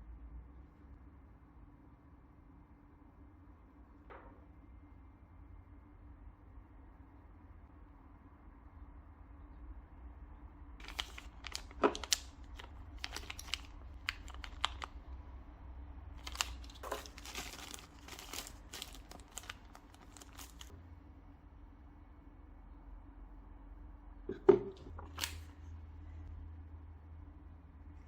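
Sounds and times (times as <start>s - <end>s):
packaging crinkling and rustling: 10.8s - 15.1s, 16.2s - 20.7s, 25.0s - 25.5s.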